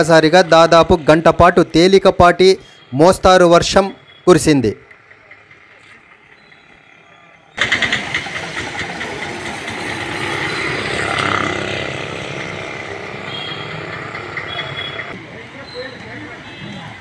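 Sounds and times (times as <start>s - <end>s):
motor traffic: 0.0s - 17.0s
vehicle passing: 4.8s - 17.0s.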